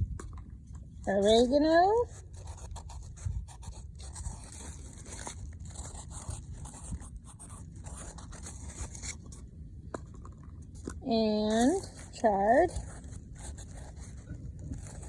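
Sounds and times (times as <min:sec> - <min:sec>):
pen scratching on peat pot: 0:01.0 - 0:10.5, 0:11.1 - 0:15.0.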